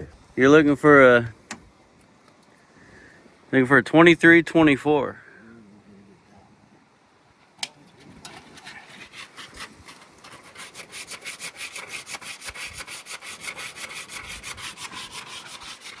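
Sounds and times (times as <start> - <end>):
brush scrubbing a hard surface: 8.0 - 16.0.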